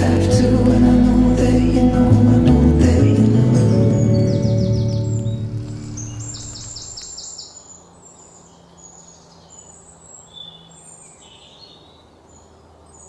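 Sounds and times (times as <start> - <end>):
birds chirping and whistling: 3.3 - 7.7.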